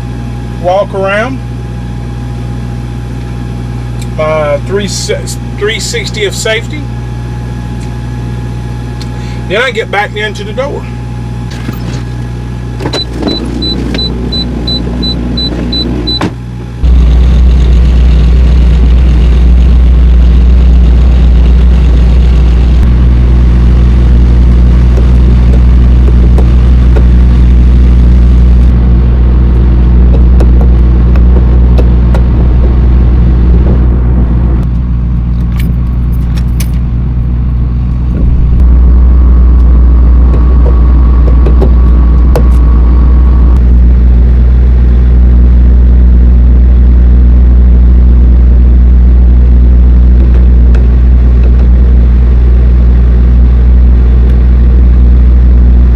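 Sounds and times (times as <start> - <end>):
diesel truck engine idling: 0.0 - 55.9.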